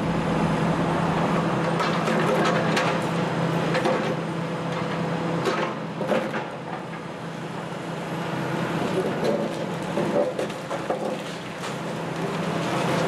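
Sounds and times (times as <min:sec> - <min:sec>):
excavator diesel engines humming: 0:00.0 - 0:10.5
wood cracking and crunching: 0:08.9 - 0:13.0.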